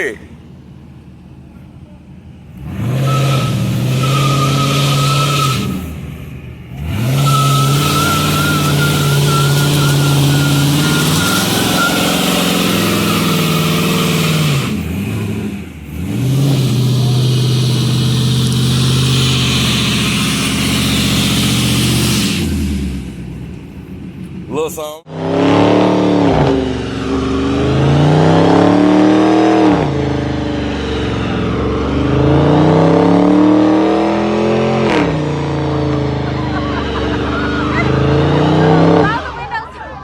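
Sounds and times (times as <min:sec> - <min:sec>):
car engine revving hard: 0:02.6 - 0:23.3, 0:25.1 - 0:39.4
tyres squealing and hissing: 0:02.9 - 0:06.0, 0:06.8 - 0:14.8, 0:16.3 - 0:22.6.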